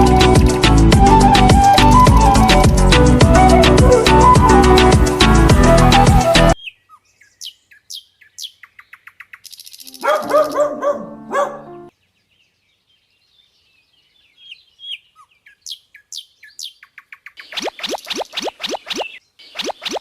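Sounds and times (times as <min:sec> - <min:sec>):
birds chirping: 0:06.6 - 0:20.0.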